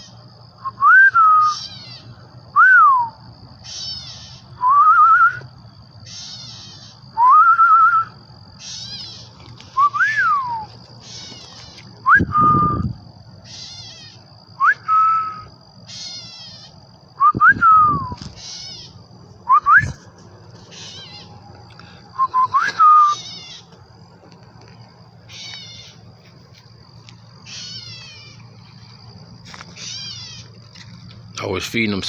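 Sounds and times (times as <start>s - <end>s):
bird chirping: 3.6s - 4.6s, 8.6s - 11.9s, 18.2s - 19.1s, 19.8s - 23.8s, 25.2s - 26.1s, 27.1s - 30.6s
person whistling: 9.8s - 10.7s, 12.1s - 12.8s, 14.6s - 15.4s, 19.5s - 20.0s, 22.2s - 23.2s.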